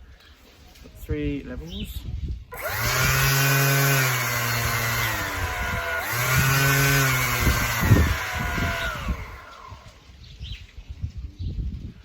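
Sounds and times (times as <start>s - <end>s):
orbital sander motor hum: 2.5s - 10.0s.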